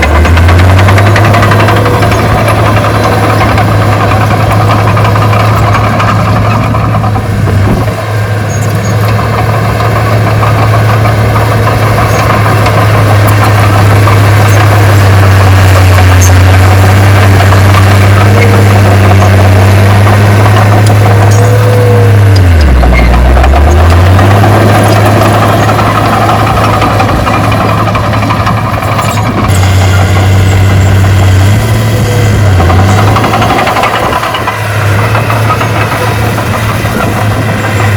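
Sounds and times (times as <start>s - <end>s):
heavy machinery diesel engine: 0.0s - 37.9s.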